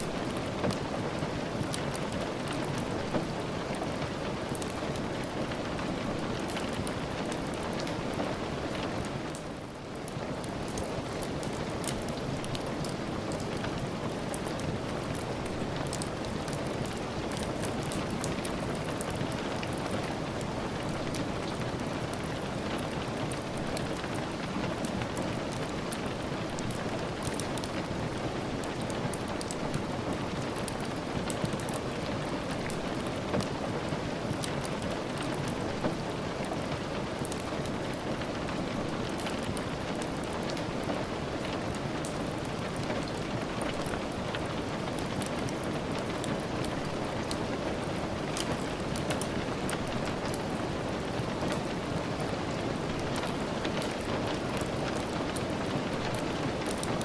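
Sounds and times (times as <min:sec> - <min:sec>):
small sharp crackles and ticks: 0:00.0 - 0:57.0
steady rain falling: 0:00.0 - 0:57.0.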